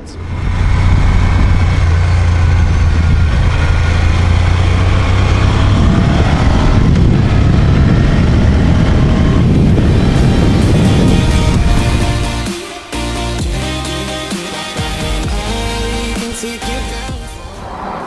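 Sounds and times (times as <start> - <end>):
motorcycle engine running: 0.0 - 17.4
wind rush over microphone: 5.0 - 12.4.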